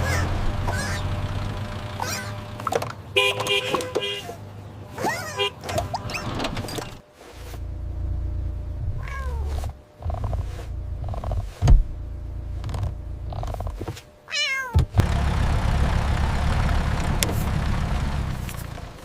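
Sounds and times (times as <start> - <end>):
cat meowing: 9.0 - 9.6, 14.3 - 14.8.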